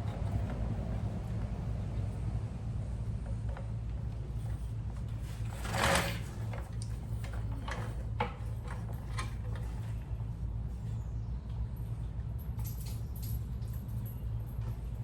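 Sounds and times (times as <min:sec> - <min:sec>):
scraping rustle: 0:04.6 - 0:08.0.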